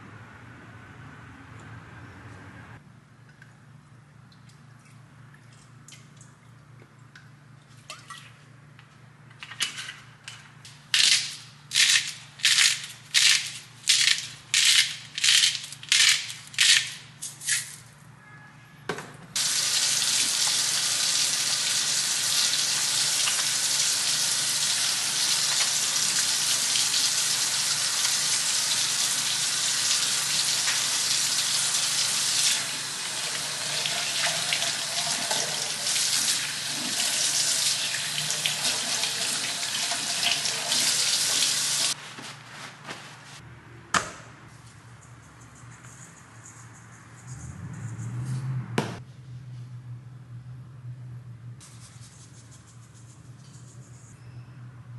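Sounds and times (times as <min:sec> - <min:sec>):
tap water running into sink: 0:19.4 - 0:42.0.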